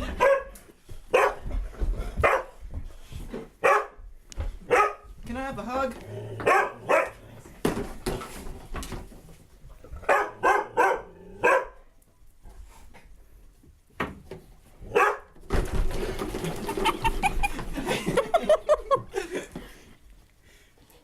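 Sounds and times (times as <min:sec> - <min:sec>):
dog barking: 0:00.0 - 0:01.5, 0:02.2 - 0:02.5, 0:03.6 - 0:04.0, 0:04.7 - 0:05.1, 0:06.4 - 0:07.2, 0:10.0 - 0:11.8, 0:14.9 - 0:15.3.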